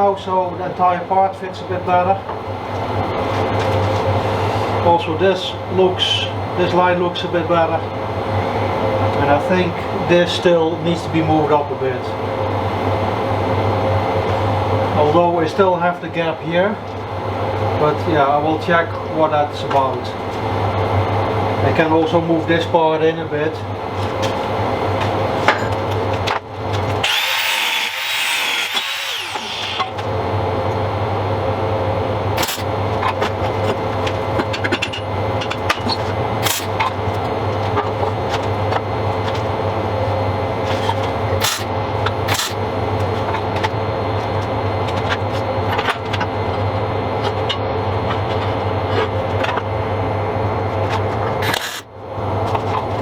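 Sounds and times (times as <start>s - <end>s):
power tool running on steel: 26.9s - 30.3s, 32.4s - 32.7s, 36.4s - 36.9s, 40.6s - 43.2s.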